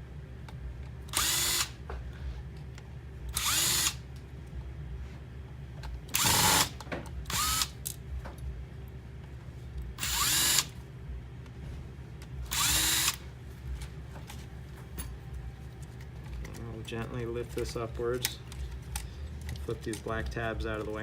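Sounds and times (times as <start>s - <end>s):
power screwdriver motor whirring: 1.1s - 1.8s, 3.3s - 4.0s, 6.1s - 7.8s, 10.0s - 10.7s, 12.5s - 13.2s.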